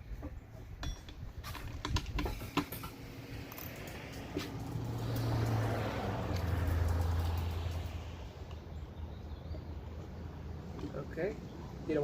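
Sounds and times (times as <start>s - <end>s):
vehicle engine drone: 2.5s - 11.3s.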